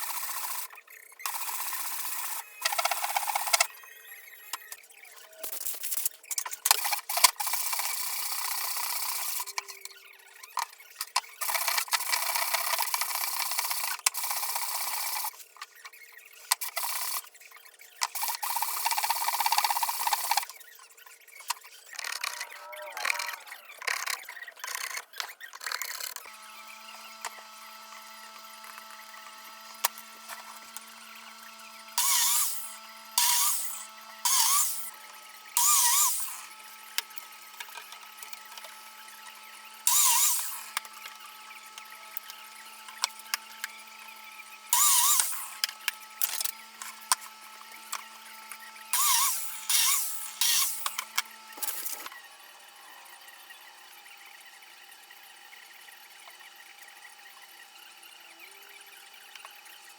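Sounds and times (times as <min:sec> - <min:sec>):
power tool cutting wood: 0:00.0 - 0:03.8, 0:06.7 - 0:15.4, 0:18.0 - 0:20.6, 0:21.9 - 0:53.2.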